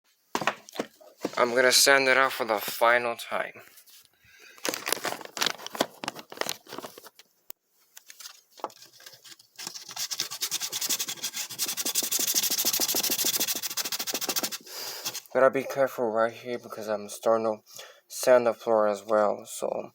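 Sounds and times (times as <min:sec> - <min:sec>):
hand sanding plywood: 0:09.9 - 0:15.3.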